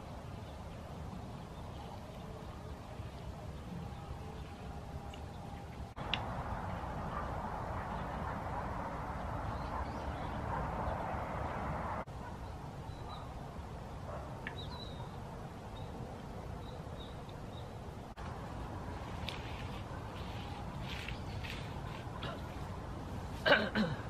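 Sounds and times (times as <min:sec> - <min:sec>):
outdoor background noise: 0:00.0 - 0:24.0
faint high bird chirps: 0:14.5 - 0:16.0.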